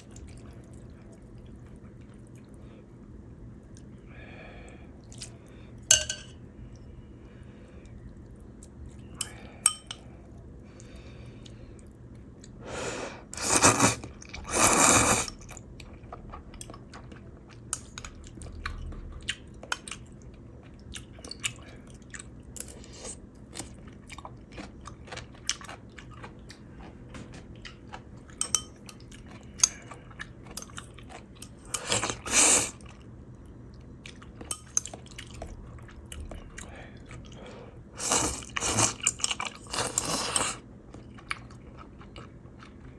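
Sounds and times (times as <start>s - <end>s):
loud noisy eating bursts: 12.7s - 15.3s, 31.8s - 32.8s
wet chewing with crunches: 13.4s - 42.9s.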